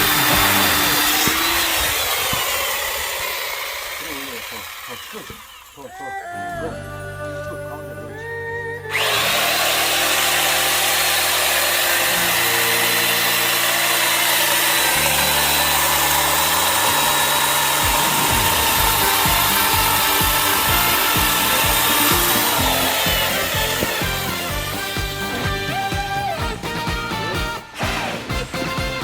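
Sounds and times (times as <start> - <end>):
song music with beat: 0.0 - 1.4, 16.0 - 29.0
power saw cutting wood: 0.0 - 6.6, 8.9 - 29.0.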